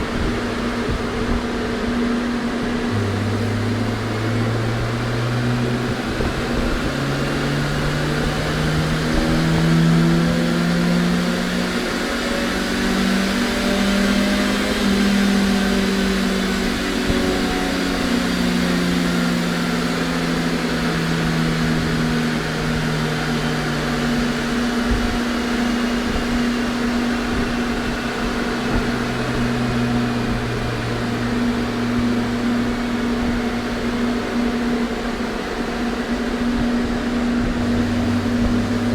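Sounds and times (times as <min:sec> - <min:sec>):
car engine revving: 0:00.0 - 0:38.9
fan-like hum and rush: 0:00.0 - 0:38.9.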